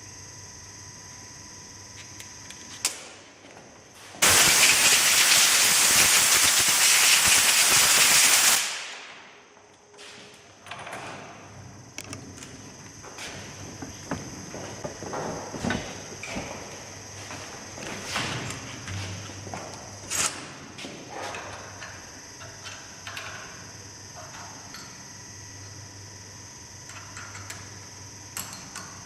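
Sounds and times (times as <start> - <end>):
hiss of escaping air: 4.2 - 9.0.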